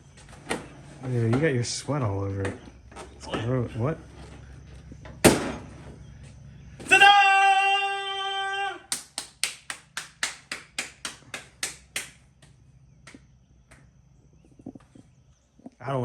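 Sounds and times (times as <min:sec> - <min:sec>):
person clapping: 0:08.9 - 0:13.8.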